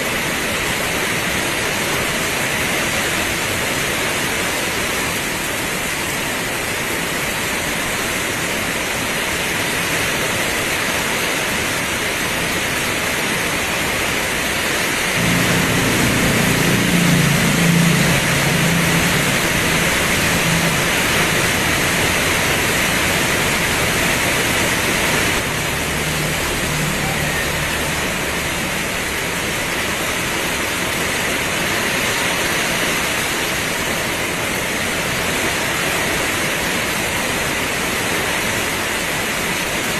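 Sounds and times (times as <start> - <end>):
heavy rain pouring: 0.0 - 39.9
low rumble: 15.2 - 30.7.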